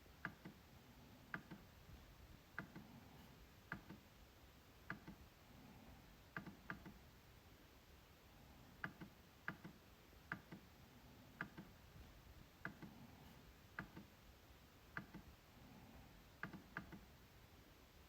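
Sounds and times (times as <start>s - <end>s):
trackpad clicks: 0.2s - 0.6s, 1.3s - 1.7s, 3.7s - 4.0s, 4.9s - 5.2s, 6.3s - 7.0s, 8.8s - 10.7s, 11.4s - 11.8s, 13.8s - 14.1s, 14.9s - 15.3s, 16.4s - 17.1s.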